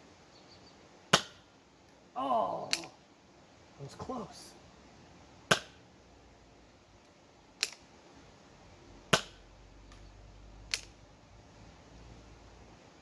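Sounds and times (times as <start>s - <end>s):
foam dart blaster pops: 1.2s - 1.4s, 5.5s - 5.8s, 9.1s - 9.4s.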